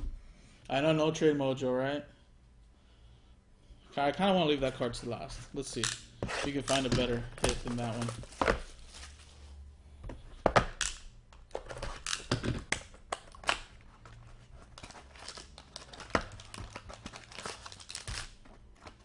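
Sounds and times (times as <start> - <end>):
card pack wrapper tearing and crinkling: 14.6 - 19.0.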